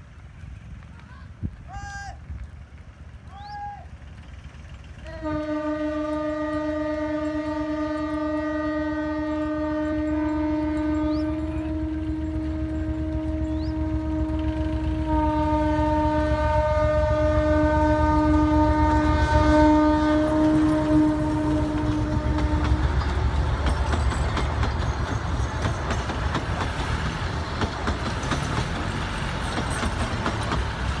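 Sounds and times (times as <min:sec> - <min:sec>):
wheels clattering on rails: 0:00.0 - 0:15.2, 0:16.2 - 0:31.0
locomotive engine rumble: 0:00.0 - 0:31.0
locomotive horn: 0:05.0 - 0:24.0.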